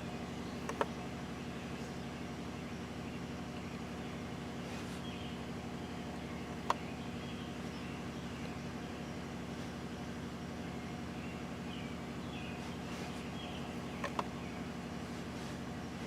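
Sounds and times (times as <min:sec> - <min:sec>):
vehicle engine idling: 0:00.0 - 0:16.0
sharp clicks: 0:00.6 - 0:00.9, 0:14.0 - 0:14.4.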